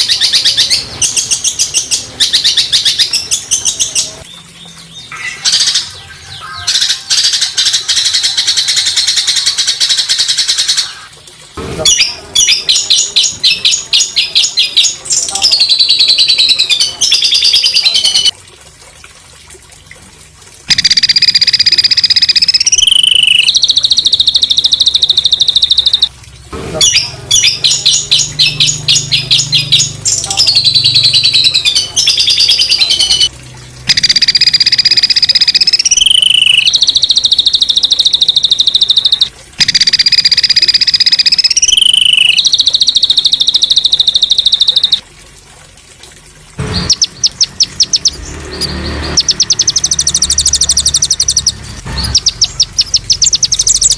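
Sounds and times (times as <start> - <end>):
songbird buzzy rattling trill: 20.7 - 26.1, 26.9 - 33.3, 33.9 - 45.0, 49.1 - 53.9.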